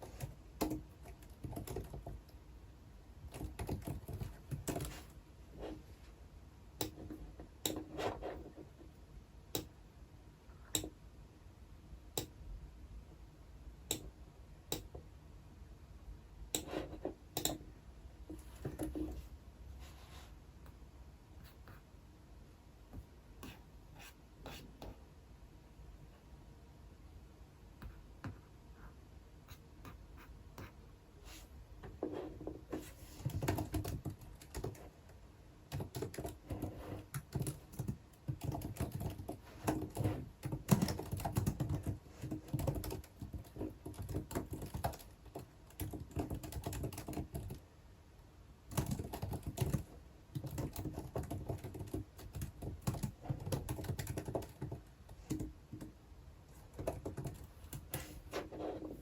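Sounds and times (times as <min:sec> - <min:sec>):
typing on computer keyboard: 0:00.0 - 0:02.4, 0:03.2 - 0:05.1, 0:33.2 - 0:35.0, 0:35.7 - 0:47.6, 0:48.7 - 0:55.9, 0:56.7 - 0:58.1.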